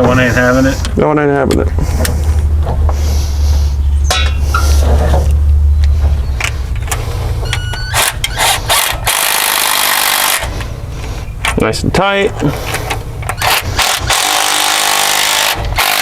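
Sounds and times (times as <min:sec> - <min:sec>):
steady low hum: 0:00.0 - 0:16.0
wrenches clicking on metal: 0:06.4 - 0:10.5, 0:12.5 - 0:16.0.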